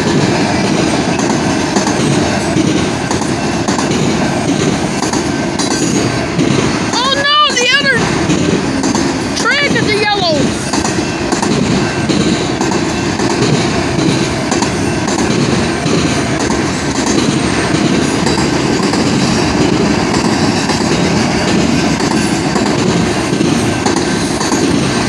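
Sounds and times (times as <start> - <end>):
steel train wheels on rails: 0.0 - 25.0.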